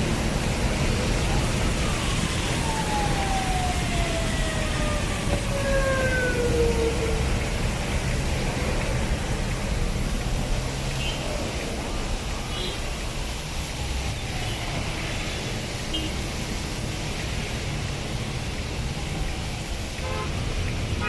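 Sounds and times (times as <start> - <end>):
road traffic passing: 0.0 - 21.0.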